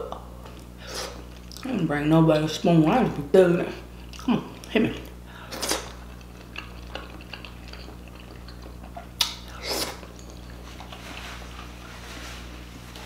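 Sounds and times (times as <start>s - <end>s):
quiet chewing: 4.0s - 12.0s
wet mouth clicks: 6.6s - 10.3s.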